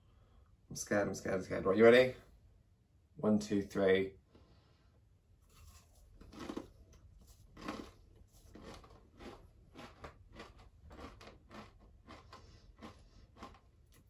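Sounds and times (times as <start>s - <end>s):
person chewing crunchy chip: 5.6s - 14.0s.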